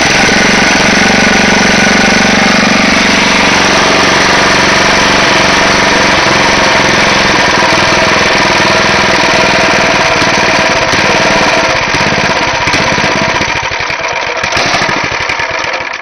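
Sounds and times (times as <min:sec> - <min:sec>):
chipper engine running: 0:00.0 - 0:16.0.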